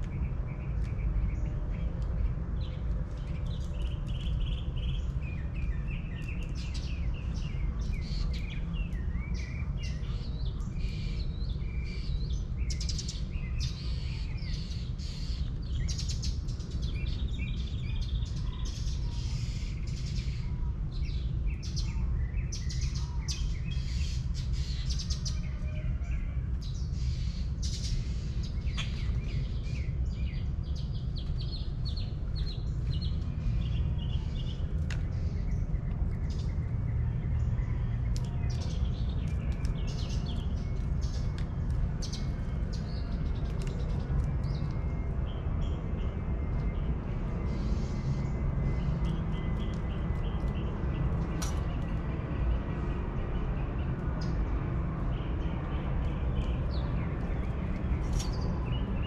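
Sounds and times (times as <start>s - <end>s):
birds chirping: 0.0s - 59.0s
steady low rumble: 26.2s - 59.0s.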